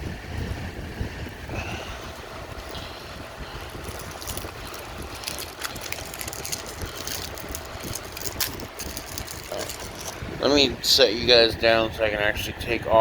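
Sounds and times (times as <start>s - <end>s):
camera handling rumble: 3.6s - 10.4s
crackles and clicks: 3.7s - 10.2s.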